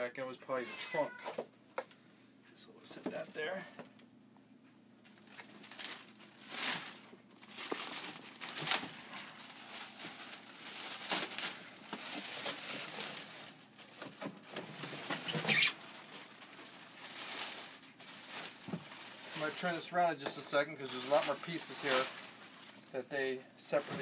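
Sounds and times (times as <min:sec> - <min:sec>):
plastic wrap crinkling: 0:05.0 - 0:24.0.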